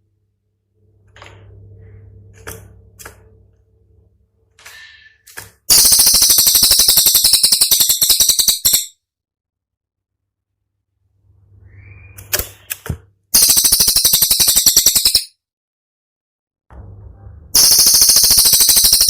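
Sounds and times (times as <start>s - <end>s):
low hum: 0.0s - 5.0s, 16.7s - 18.2s
songbird chirping and rattling: 5.7s - 8.9s, 13.4s - 15.3s, 17.6s - 19.0s.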